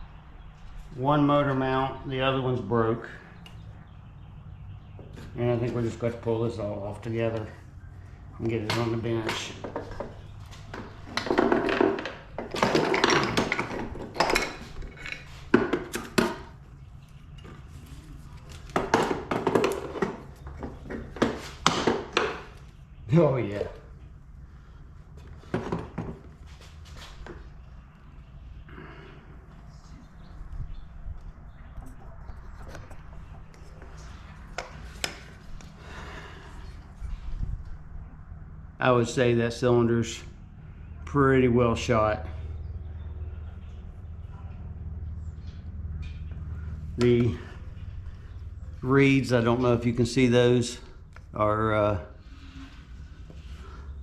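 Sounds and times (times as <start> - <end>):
metal tools and parts clanking: 8.6 - 16.5.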